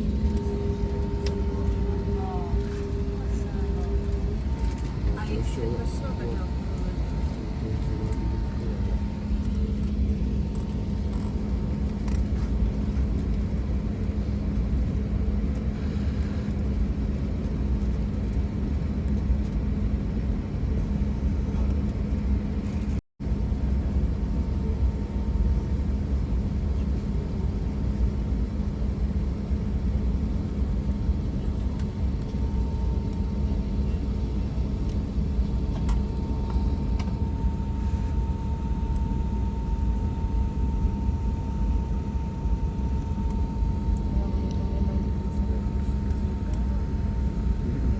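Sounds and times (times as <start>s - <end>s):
airliner cabin rumble: 0.0s - 47.9s.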